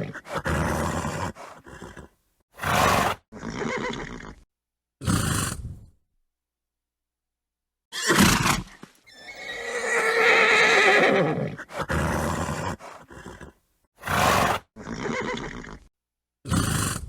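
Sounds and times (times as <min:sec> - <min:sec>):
horse neighing: 0:00.0 - 0:04.4, 0:07.9 - 0:15.9
horse snorting: 0:00.0 - 0:04.4, 0:08.0 - 0:15.9, 0:16.5 - 0:17.0.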